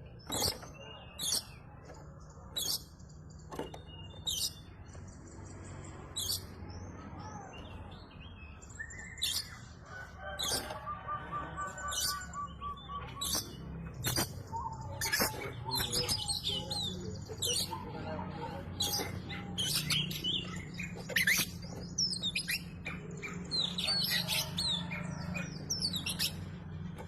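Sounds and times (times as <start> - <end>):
songbird chirping and whistling: 7.4 - 18.0, 18.8 - 26.6.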